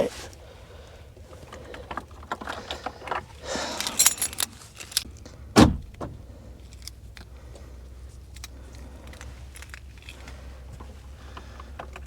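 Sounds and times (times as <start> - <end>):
keys jangling: 3.7 - 5.1
heavy thump: 5.6 - 6.3.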